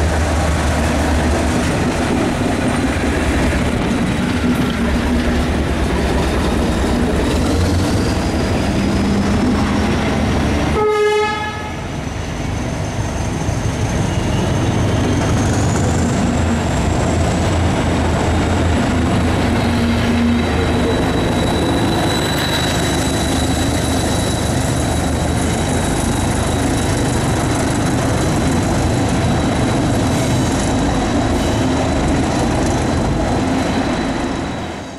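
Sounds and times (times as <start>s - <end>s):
train engine whine: 0.0s - 34.9s
train horn blast: 10.7s - 11.9s.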